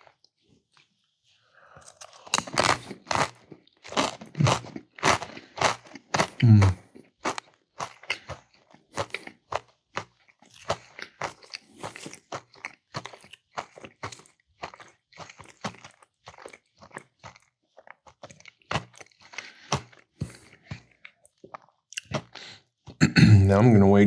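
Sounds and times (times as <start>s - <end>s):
person chewing crunchy food: 1.6s - 23.2s
wet mouth sounds: 4.1s - 6.9s, 21.9s - 23.4s.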